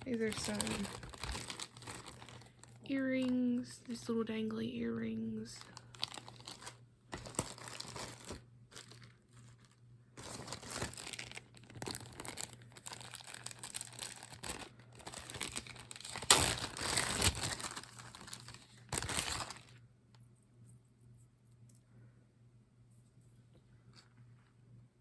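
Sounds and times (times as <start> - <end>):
plastic bags crinkling: 0.0 - 4.0, 5.5 - 19.8.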